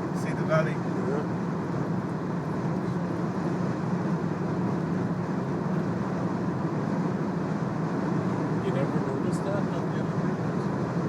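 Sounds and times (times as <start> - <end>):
car road and wind noise: 0.0 - 11.0.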